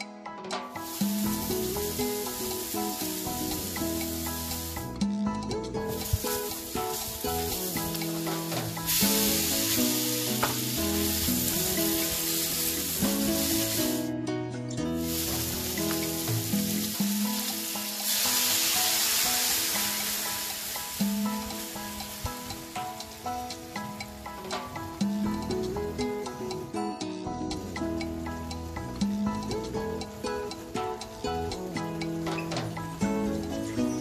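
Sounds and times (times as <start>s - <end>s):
food sizzling in oil: 0.8s - 5.0s, 5.8s - 14.1s, 15.0s - 26.6s.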